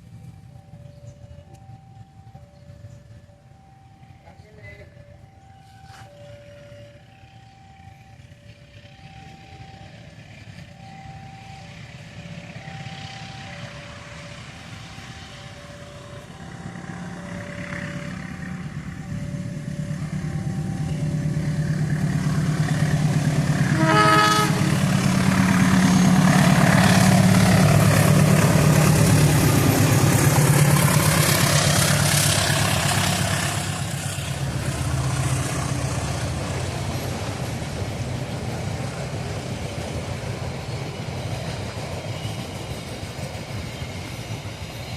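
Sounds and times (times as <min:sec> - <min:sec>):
train passing: 0:00.0 - 0:44.9
level crossing warning beeps: 0:00.3 - 0:23.2
locomotive horn blast: 0:23.6 - 0:26.7.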